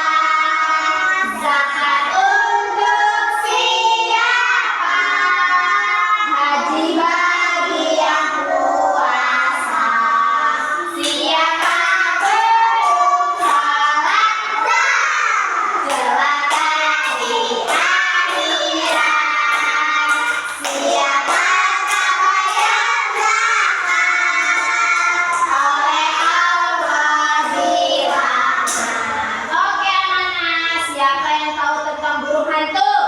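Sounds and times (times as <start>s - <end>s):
young children singing: 0.0s - 32.0s
sharp claps: 11.0s - 29.3s.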